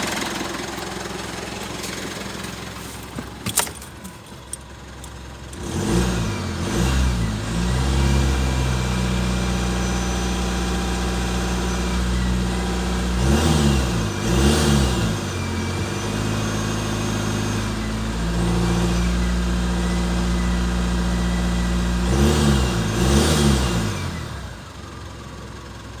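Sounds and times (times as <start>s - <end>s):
engine idling and revving: 0.0s - 26.0s.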